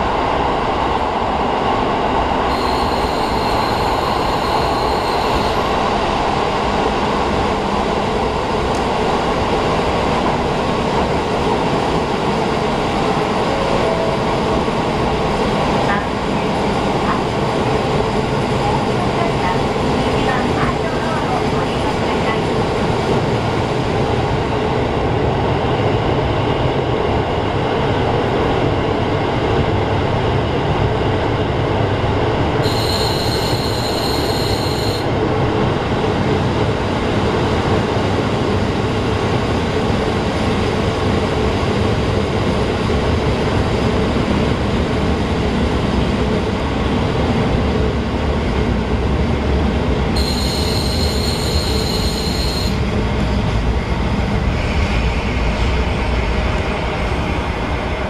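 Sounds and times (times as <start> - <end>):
train rumbling on rails: 0.0 - 58.0
high squeal from running gear: 2.5 - 5.8, 32.6 - 35.0, 50.2 - 52.8.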